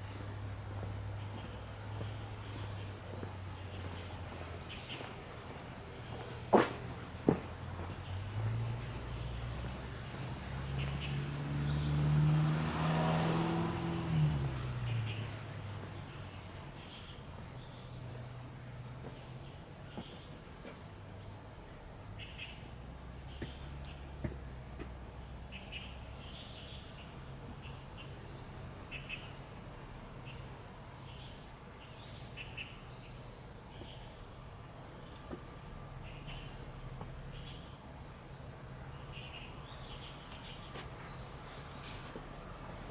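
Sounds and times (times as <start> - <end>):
small birds chirping: 14.1 - 35.3.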